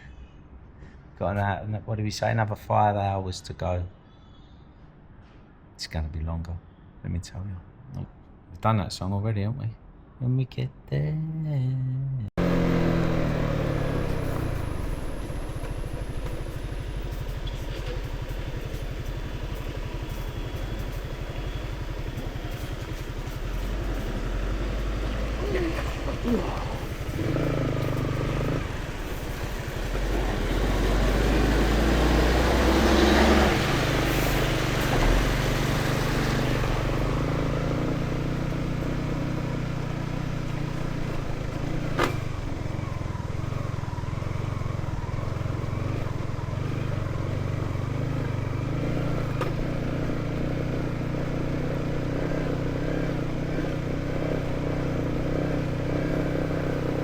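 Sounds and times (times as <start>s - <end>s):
motorcycle engine running: 12.4s - 57.0s.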